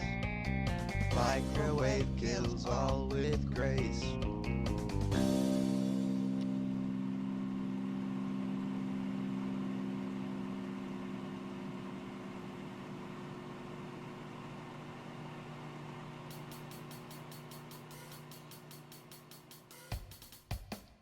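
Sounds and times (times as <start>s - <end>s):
microwave oven humming: 1.0s - 19.8s.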